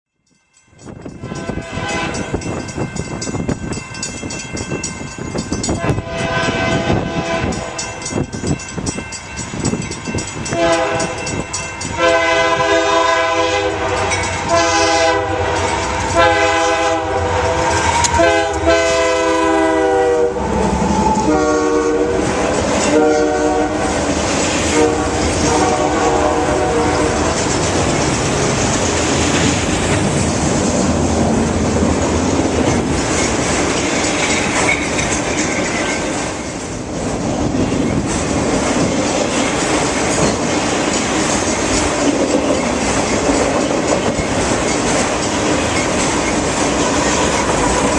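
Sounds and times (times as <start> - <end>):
freight train passing: 0.2 - 47.9
wheels clattering on rails: 0.6 - 12.7, 13.8 - 14.9, 26.8 - 47.9
train air horn blasts: 1.2 - 2.4, 5.8 - 7.9, 10.5 - 11.3, 11.9 - 27.4.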